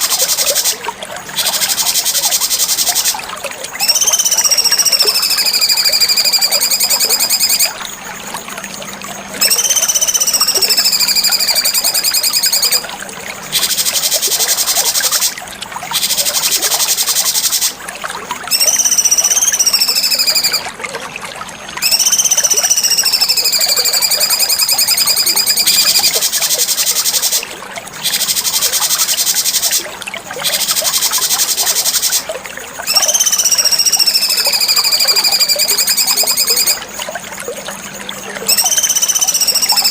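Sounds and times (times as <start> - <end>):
songbird whistling and trilling: 3.8 - 7.8, 9.4 - 12.9, 18.5 - 20.7, 21.8 - 27.4, 28.0 - 29.8, 30.4 - 32.2, 32.8 - 36.8, 38.4 - 39.9.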